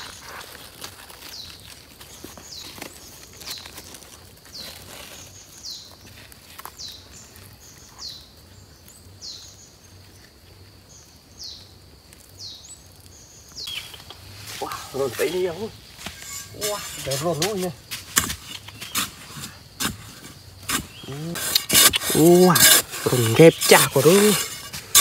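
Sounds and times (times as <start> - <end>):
bird calling: 13.6 - 17.8.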